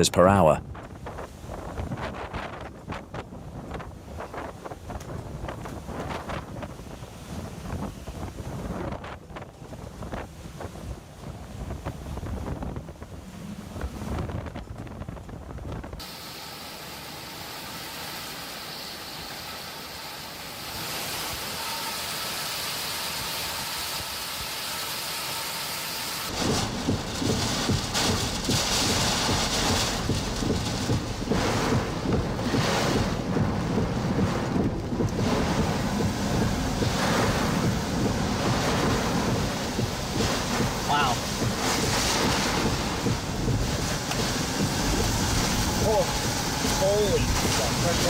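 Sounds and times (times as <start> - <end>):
wind gusts buffeting microphone: 0.0 - 16.1, 26.2 - 48.0
wind and rain hiss: 0.0 - 48.0.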